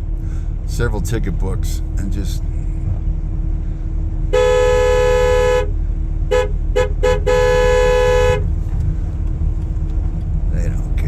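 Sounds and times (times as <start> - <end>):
engine rumble: 0.0 - 11.0
two-tone vehicle horn honking: 4.3 - 8.6.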